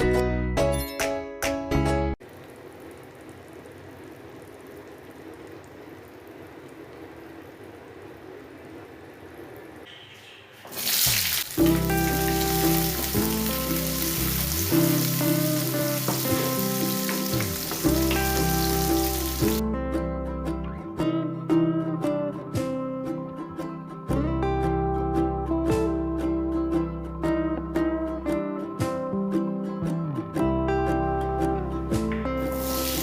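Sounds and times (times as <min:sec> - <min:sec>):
background music with melody: 0:00.0 - 0:02.2, 0:11.6 - 0:33.0
food sizzling in a pan: 0:10.7 - 0:19.6, 0:32.4 - 0:33.0.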